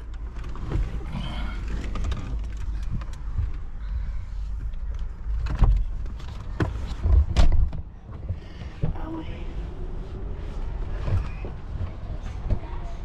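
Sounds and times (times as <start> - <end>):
knocks and thuds: 5.4 - 9.0.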